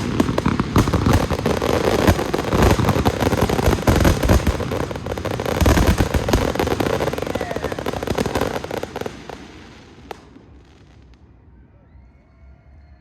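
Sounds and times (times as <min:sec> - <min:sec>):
fireworks crackling and banging: 0:00.0 - 0:11.3.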